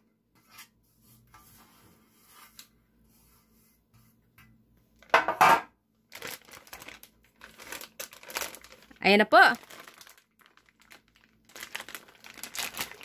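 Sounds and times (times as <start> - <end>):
plastic bag crinkling: 6.1 - 13.0.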